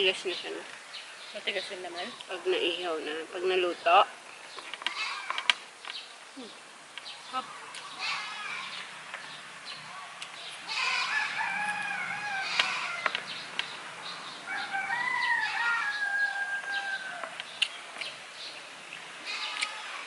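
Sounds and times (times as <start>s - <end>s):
rooster crowing: 10.7s - 13.2s, 14.4s - 17.4s.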